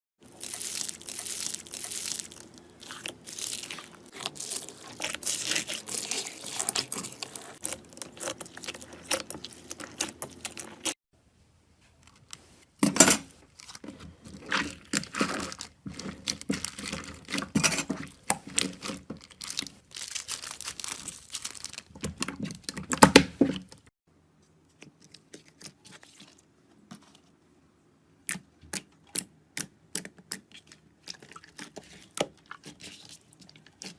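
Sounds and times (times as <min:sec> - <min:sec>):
slime squishing: 0:00.2 - 0:11.0, 0:13.5 - 0:23.8, 0:28.3 - 0:33.9.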